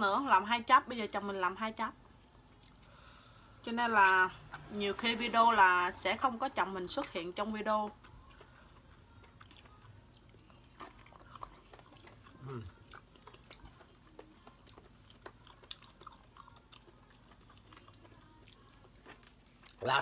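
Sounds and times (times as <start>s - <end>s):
chewing and mouth sounds: 2.3s - 3.1s, 6.9s - 20.0s
voice humming: 12.4s - 12.8s.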